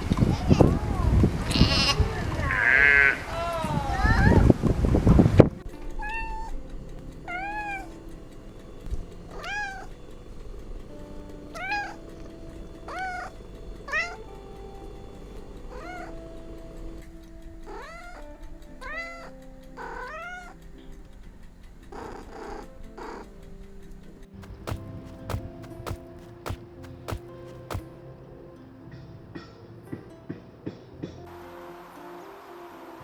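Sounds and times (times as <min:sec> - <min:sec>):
soft background music: 0:00.0 - 0:33.0
cat meowing: 0:07.3 - 0:08.0, 0:09.3 - 0:09.9, 0:11.6 - 0:12.0, 0:15.7 - 0:16.1, 0:18.8 - 0:20.6.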